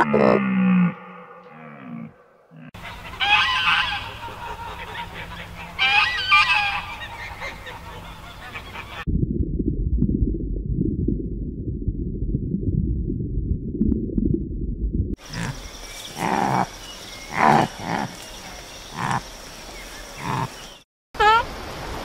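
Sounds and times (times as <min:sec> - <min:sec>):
low muffled rumble: 0:09.1 - 0:15.2
faint outdoor background: 0:15.2 - 0:22.0
animal grunts: 0:15.3 - 0:16.7, 0:17.3 - 0:18.2, 0:18.9 - 0:19.2, 0:20.2 - 0:20.6.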